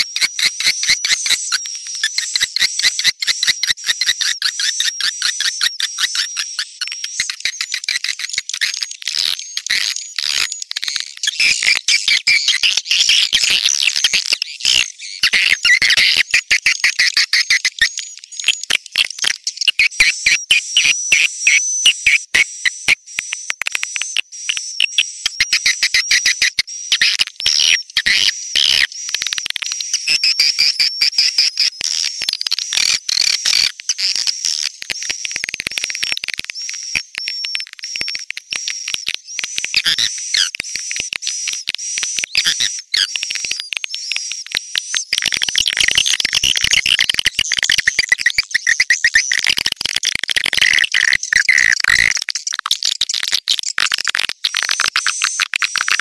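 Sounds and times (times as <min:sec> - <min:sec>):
swiftlets twittering: 0:33.4 - 0:45.6.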